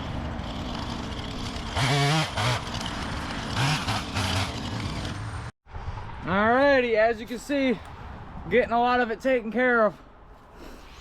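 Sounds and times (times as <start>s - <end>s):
engine rumbling: 0.0s - 8.5s.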